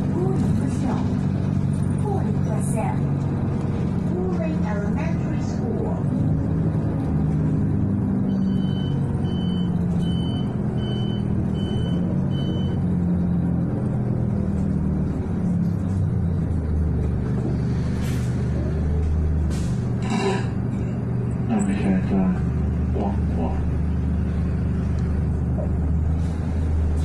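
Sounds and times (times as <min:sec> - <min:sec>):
bus engine drone: 0:00.0 - 0:27.0
short electronic beeps: 0:08.3 - 0:12.8.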